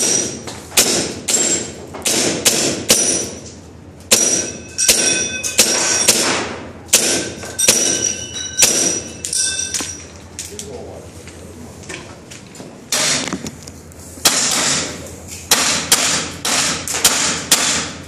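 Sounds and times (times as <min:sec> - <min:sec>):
metallic ringing: 0:04.1 - 0:06.2, 0:07.1 - 0:10.3.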